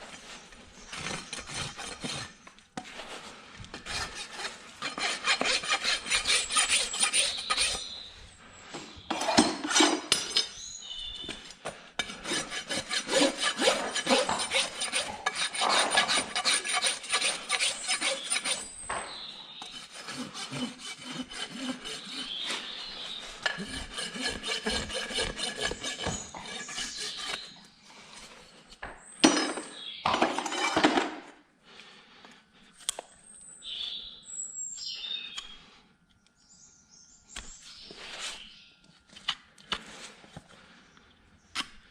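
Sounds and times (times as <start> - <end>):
rasp filing a hoof: 0.8 - 8.1, 12.0 - 27.7.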